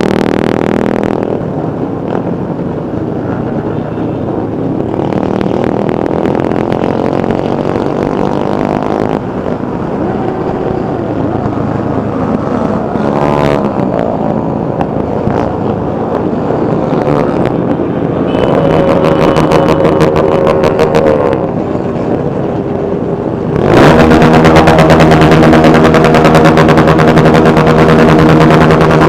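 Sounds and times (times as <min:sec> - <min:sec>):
motorcycle engines revving: 0:00.0 - 0:02.3, 0:03.3 - 0:29.0
high steady tone: 0:18.2 - 0:21.5.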